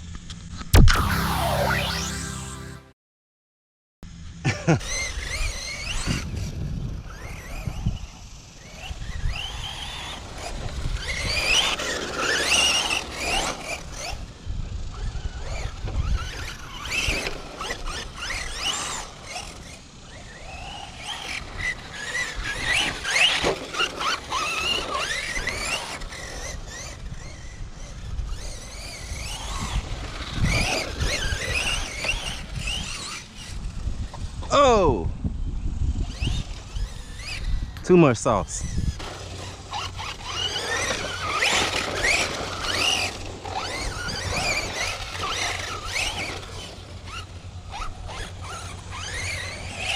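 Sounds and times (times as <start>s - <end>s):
electric motor whining: 0.8s - 2.9s, 38.6s - 49.9s.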